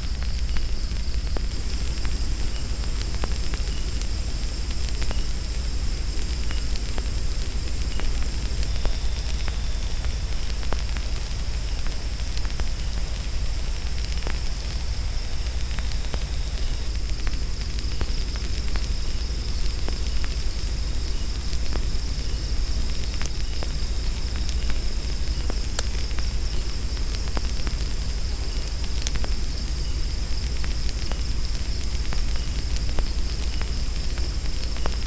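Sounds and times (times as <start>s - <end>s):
campfire crackling and popping: 0.0s - 35.0s
jungle insects droning: 0.0s - 35.0s.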